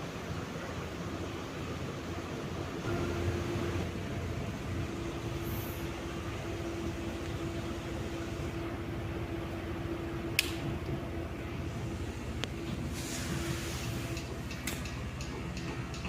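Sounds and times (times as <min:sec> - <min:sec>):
ceiling fan motor hum: 0:00.0 - 0:16.0
sharp click: 0:10.4 - 0:10.6.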